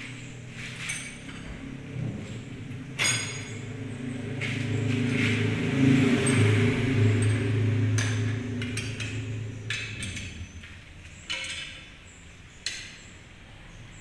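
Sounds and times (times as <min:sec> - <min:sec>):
low machine hum: 0:00.0 - 0:14.0
metallic clinks and knocks: 0:00.6 - 0:01.8, 0:02.9 - 0:03.9, 0:06.2 - 0:11.9.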